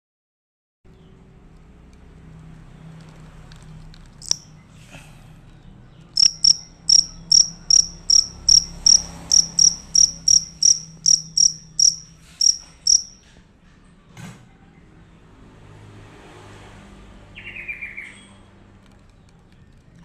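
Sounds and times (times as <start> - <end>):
cricket chirping: 4.2 - 4.5, 6.2 - 13.2.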